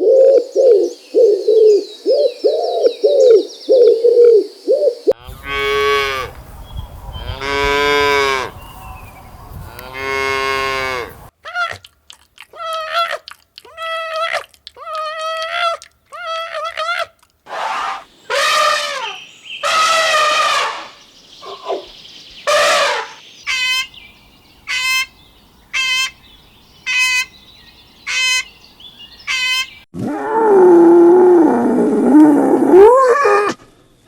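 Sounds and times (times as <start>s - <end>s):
drawn-out animal cries: 17.5s - 21.9s, 22.5s - 23.9s
short high animal calls: 17.5s - 21.9s, 22.5s - 23.8s.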